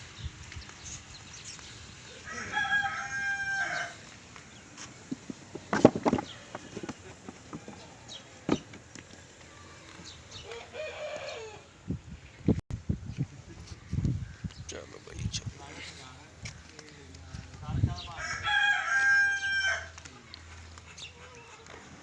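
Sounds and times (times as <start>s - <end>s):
rooster crowing: 2.2s - 4.1s, 10.4s - 11.7s, 18.2s - 20.0s.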